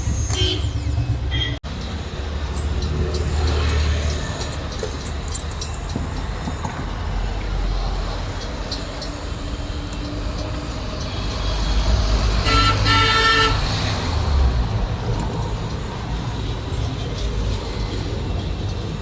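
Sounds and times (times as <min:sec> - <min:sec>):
low traffic rumble: 0:00.0 - 0:19.0
vehicle horn tooting: 0:00.3 - 0:01.6, 0:12.4 - 0:13.7.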